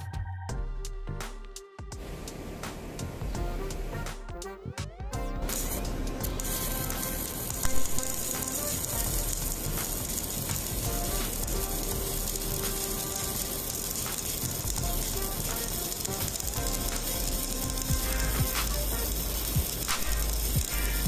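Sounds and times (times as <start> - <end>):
welding arc sizzling and crackling: 2.0 - 4.5, 5.1 - 21.0
welding arc pop: 5.4 - 21.0.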